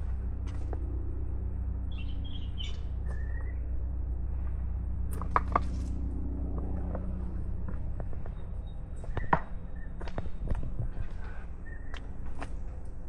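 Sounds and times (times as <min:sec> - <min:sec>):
low rumble: 0:00.0 - 0:13.0
small birds chirping: 0:01.9 - 0:03.7, 0:11.2 - 0:12.2.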